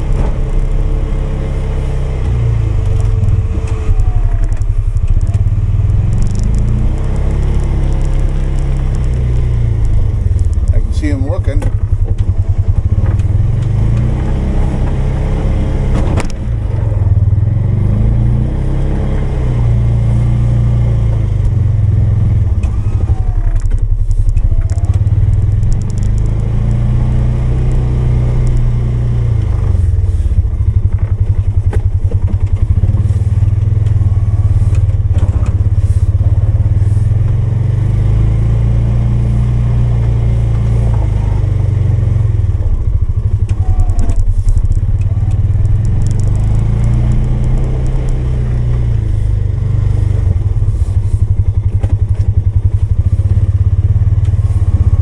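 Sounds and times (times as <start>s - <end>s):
engine running under load: 0.0s - 55.0s.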